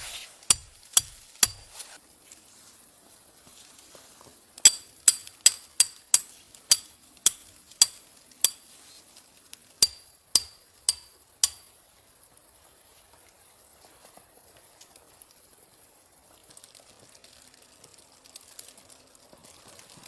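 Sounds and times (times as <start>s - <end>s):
sharp metallic strikes ringing: 0.0s - 1.8s, 4.7s - 8.6s, 9.8s - 11.7s.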